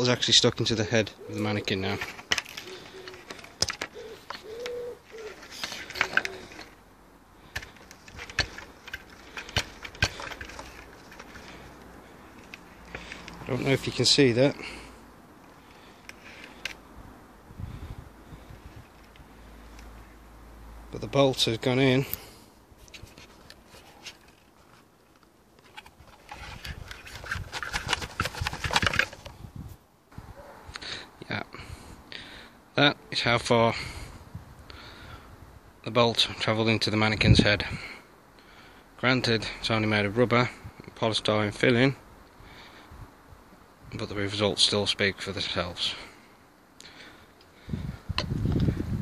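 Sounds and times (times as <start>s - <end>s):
dove cooing: 1.0s - 6.8s
plastic helmet handling clicks: 2.0s - 6.8s, 7.5s - 13.5s, 15.5s - 16.8s, 22.8s - 29.4s.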